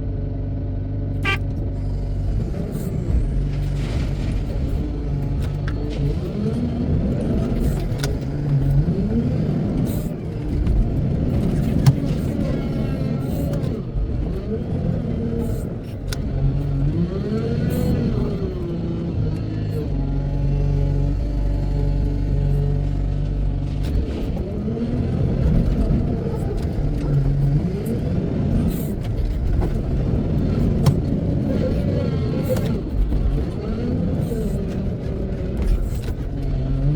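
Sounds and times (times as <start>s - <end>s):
diesel engine revving: 0.0s - 36.9s
engine knocks: 23.2s - 36.9s.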